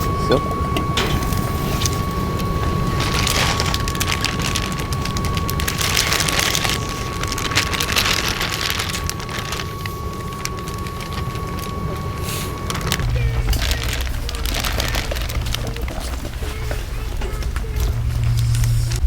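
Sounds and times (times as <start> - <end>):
faint steady high tone: 0.0 - 19.0
low rumble: 0.0 - 19.0
rain falling steadily: 1.8 - 19.0.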